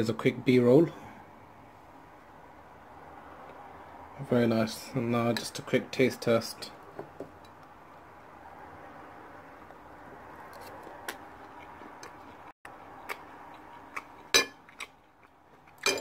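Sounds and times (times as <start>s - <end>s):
noisy chewing: 9.6s - 15.9s.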